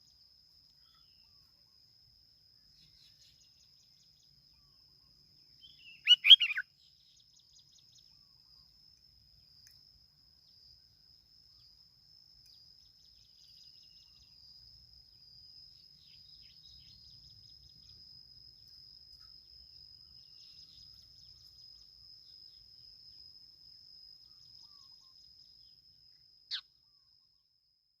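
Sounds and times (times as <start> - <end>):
bird calling: 5.7 - 6.6.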